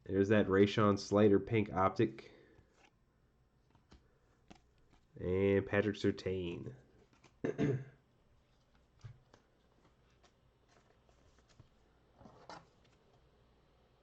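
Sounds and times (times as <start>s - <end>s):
trading cards clicking and rustling: 3.6s - 5.2s, 6.9s - 7.5s, 8.5s - 13.2s.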